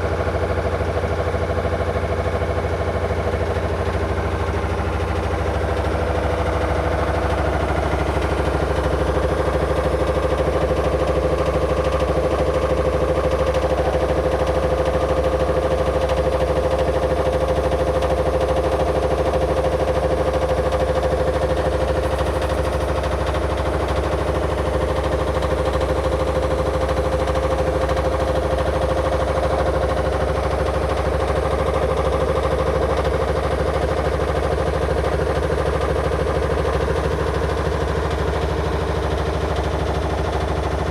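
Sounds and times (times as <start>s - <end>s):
washing machine motor humming: 0.0s - 40.9s.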